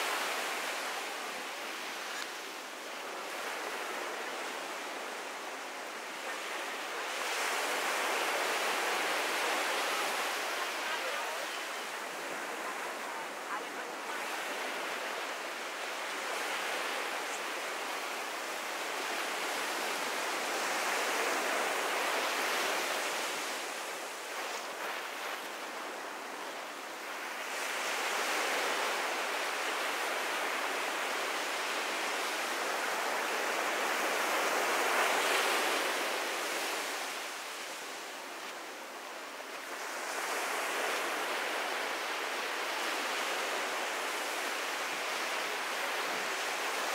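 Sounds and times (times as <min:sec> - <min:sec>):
ocean surf washing onto beach: 0:00.0 - 0:46.9.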